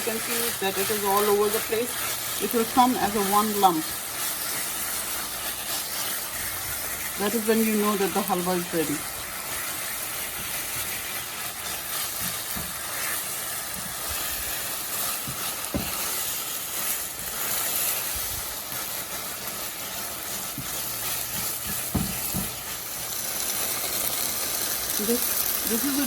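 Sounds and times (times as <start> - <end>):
food sizzling in a hot pan: 0.0 - 26.0
spatula knocking: 15.2 - 16.3, 20.3 - 22.9.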